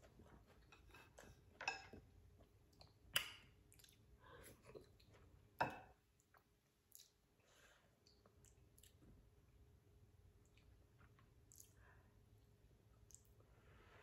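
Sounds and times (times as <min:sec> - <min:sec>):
chewing food with mouth clicks: 0:02.4 - 0:05.4, 0:06.1 - 0:07.4, 0:08.0 - 0:09.2, 0:10.4 - 0:11.8, 0:12.9 - 0:13.4.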